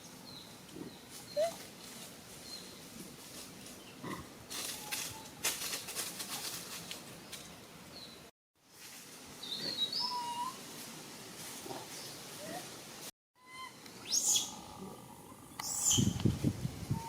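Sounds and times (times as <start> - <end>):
crackling and rustling: 0.6 - 7.7.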